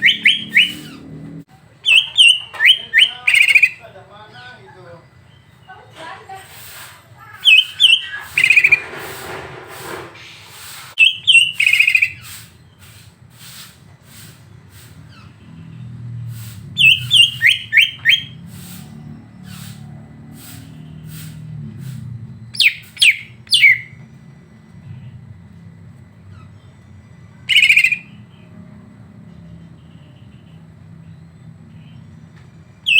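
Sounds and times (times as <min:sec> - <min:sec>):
songbird calling in sharp high notes: 0:00.0 - 0:01.1, 0:01.8 - 0:03.9, 0:07.4 - 0:08.8, 0:11.0 - 0:12.9, 0:16.8 - 0:18.8, 0:22.6 - 0:24.0, 0:27.5 - 0:28.2.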